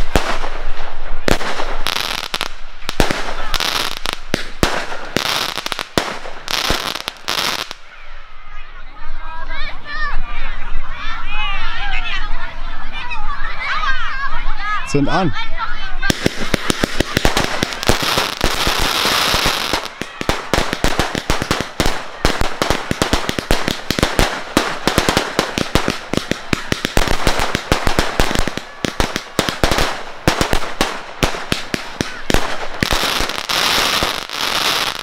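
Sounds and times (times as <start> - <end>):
firework bangs and crackles: 0.0 - 8.0, 16.0 - 35.0.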